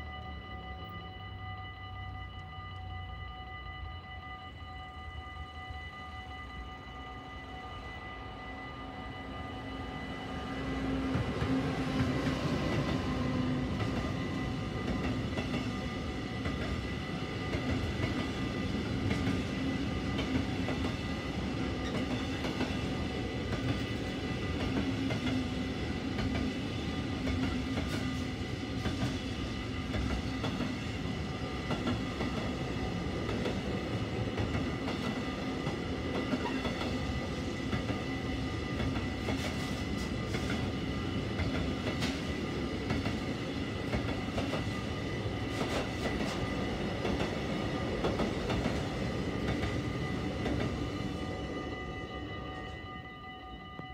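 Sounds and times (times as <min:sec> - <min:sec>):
train wheel rumble: 0:01.6 - 0:53.9
clickety-clack of wheels on rail joints: 0:05.0 - 0:53.9.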